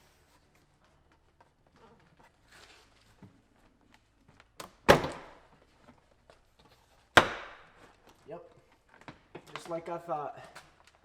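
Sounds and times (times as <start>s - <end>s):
loud plastic crack: 4.6s - 5.5s, 7.2s - 7.9s.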